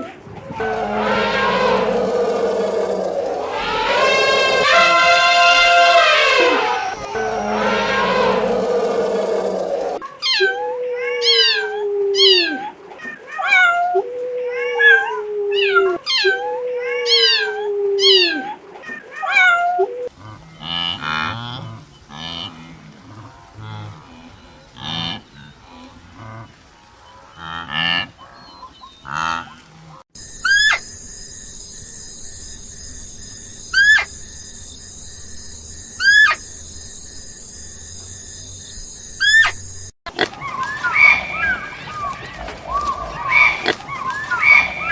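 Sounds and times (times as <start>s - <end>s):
rough low animal calls: 0.4s - 10.0s, 40.1s - 44.9s
falling pitched animal cries: 0.5s - 11.8s, 40.4s - 44.9s
sharp downward chirps: 0.6s - 10.0s
steady hiss: 0.6s - 10.0s.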